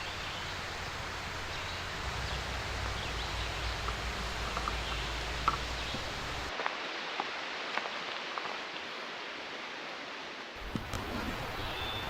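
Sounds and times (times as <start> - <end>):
outdoor hiss: 0.0 - 12.0
light rustling: 0.1 - 6.5.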